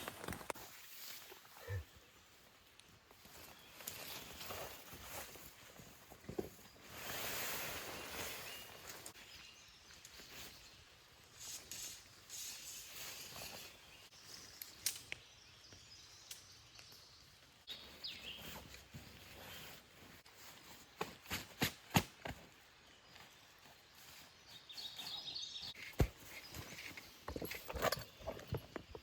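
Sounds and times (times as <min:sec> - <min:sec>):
faint outdoor ambience: 0:00.0 - 0:29.0
bird chirp: 0:13.0 - 0:19.8, 0:22.8 - 0:28.9.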